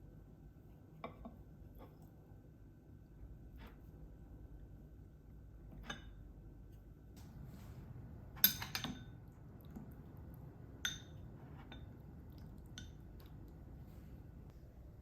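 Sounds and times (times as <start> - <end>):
faint room hum: 0.0 - 15.0
kitchenware clinking: 8.3 - 9.4, 10.8 - 12.0.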